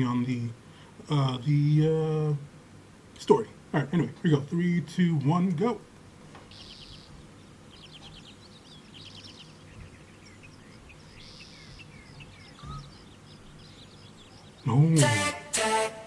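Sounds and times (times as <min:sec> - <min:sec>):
faint birdsong chirps and trills: 0:00.0 - 0:15.0.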